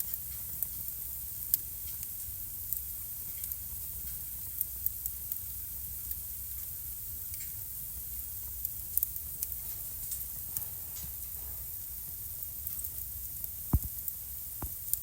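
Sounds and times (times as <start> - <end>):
fire hissing: 0.1 - 15.0
fire sharp pops: 12.6 - 15.0.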